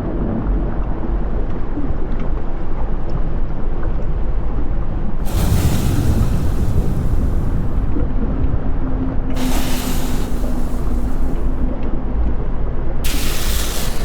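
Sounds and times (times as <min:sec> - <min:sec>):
deep volcanic rumble: 0:05.0 - 0:12.4, 0:13.0 - 0:14.0
volcanic hiss: 0:05.2 - 0:08.0, 0:09.4 - 0:11.6, 0:13.0 - 0:14.0.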